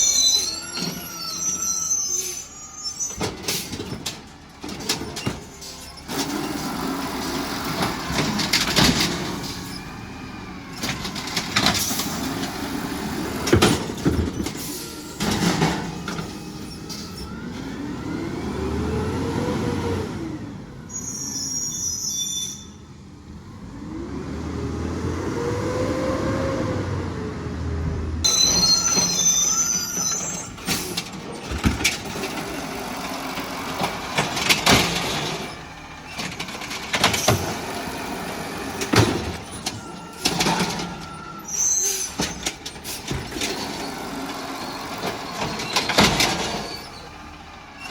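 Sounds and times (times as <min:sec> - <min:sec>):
short high squeals: 0:00.0 - 0:03.4, 0:20.9 - 0:22.8, 0:28.2 - 0:30.7, 0:41.0 - 0:42.4
garbage truck bangs and clatter: 0:03.1 - 0:17.7, 0:28.2 - 0:47.9
truck engine revving: 0:15.4 - 0:20.7, 0:23.3 - 0:28.2, 0:30.5 - 0:41.1.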